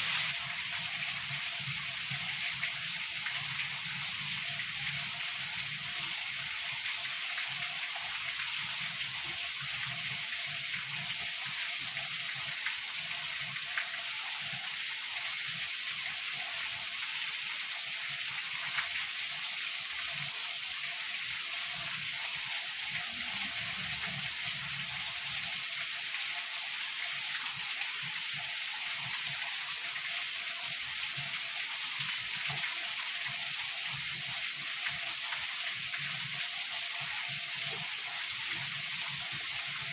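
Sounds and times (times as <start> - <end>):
heavy rain hissing: 0.0 - 0.4.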